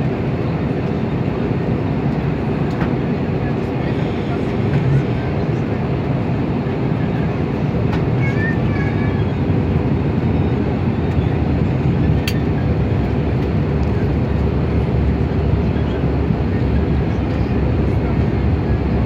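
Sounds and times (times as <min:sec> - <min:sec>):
aircraft engines and airflow rumble: 0:00.0 - 0:19.0.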